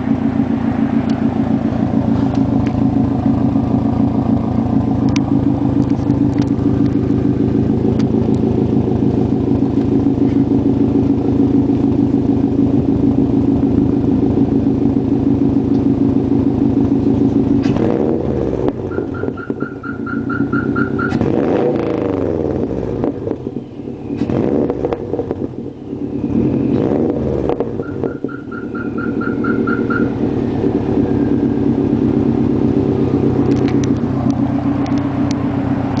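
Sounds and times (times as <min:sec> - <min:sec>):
car engine idling and revving: 0:00.0 - 0:36.0
electronic beeping: 0:18.9 - 0:21.2, 0:27.8 - 0:30.2.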